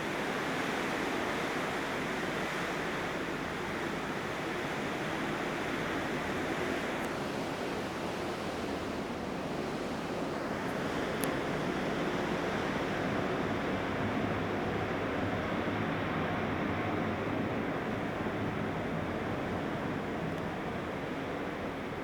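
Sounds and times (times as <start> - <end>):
wind: 0.0 - 22.0
faint tick: 11.2 - 11.4.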